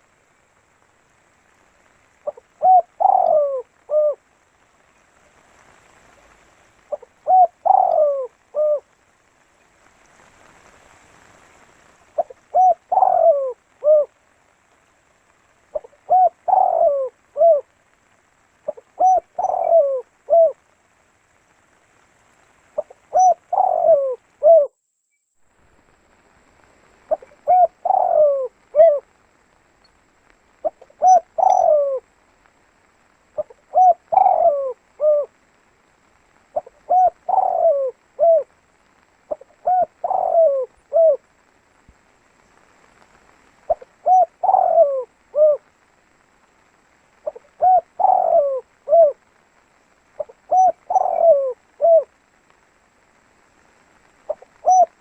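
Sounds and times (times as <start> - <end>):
dove cooing: 2.2 - 4.3, 6.8 - 9.0, 12.1 - 14.2, 15.7 - 17.8, 18.6 - 20.7, 22.8 - 24.7, 27.1 - 29.1, 30.6 - 32.1, 33.4 - 35.5, 36.5 - 38.6, 39.3 - 41.3, 43.7 - 45.7, 47.2 - 49.2, 50.2 - 52.3, 54.3 - 55.0.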